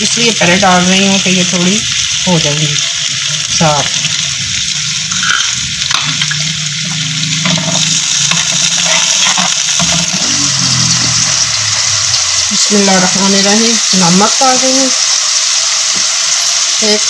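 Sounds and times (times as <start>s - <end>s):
vegetables sizzling in oil: 0.0s - 17.0s
wooden spoon stirring: 5.1s - 10.2s.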